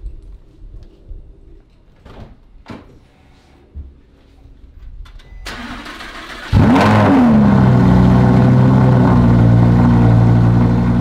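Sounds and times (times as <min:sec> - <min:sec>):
car engine starting and idling: 0:05.4 - 0:11.0.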